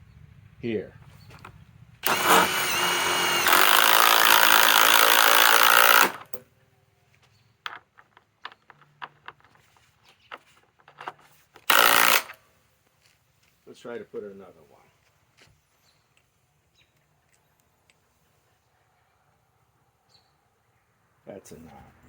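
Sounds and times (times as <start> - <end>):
impact driver rattling: 2.0 - 6.4, 11.6 - 12.4.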